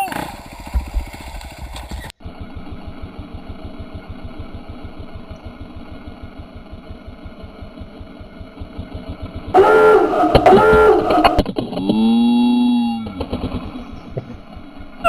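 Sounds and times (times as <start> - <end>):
dirt bike engine idling: 0.0 - 15.0
loud sound: 9.5 - 13.4.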